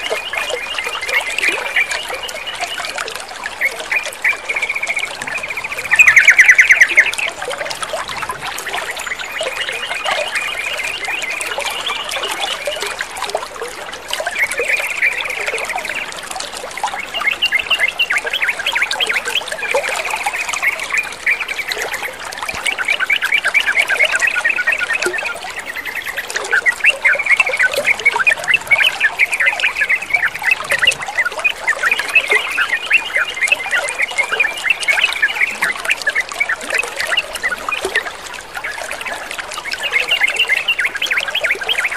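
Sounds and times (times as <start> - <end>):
running water trickling: 0.0 - 41.9
birds chattering: 3.7 - 7.4.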